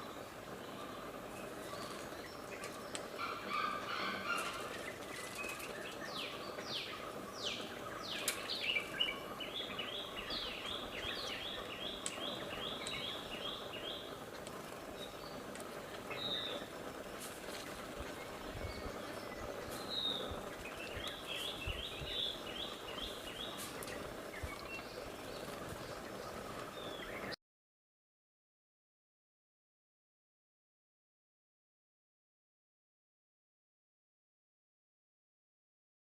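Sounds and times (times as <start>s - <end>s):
birds calling and singing: 0.0s - 27.4s
steady background hiss: 0.0s - 27.4s.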